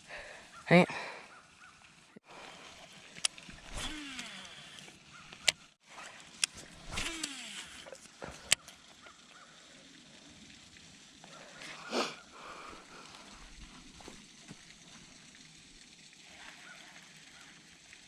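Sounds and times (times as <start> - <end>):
reel spool whirring: 2.2 - 17.6
reel clicks: 2.7 - 8.8.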